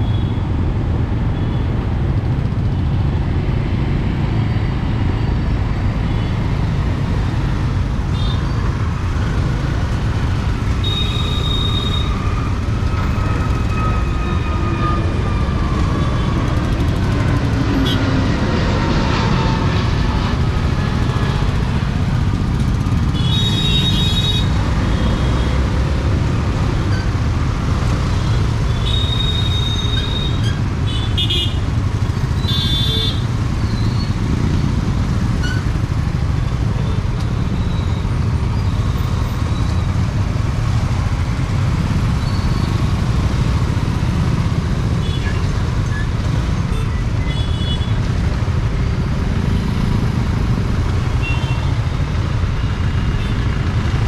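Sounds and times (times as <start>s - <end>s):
scooter engine and road rumble: 0.0s - 54.0s
vehicle horns honking: 32.4s - 33.2s.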